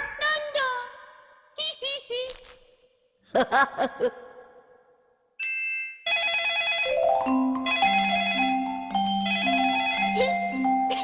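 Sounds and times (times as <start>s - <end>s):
electronic ringtone melody: 5.4s - 11.0s.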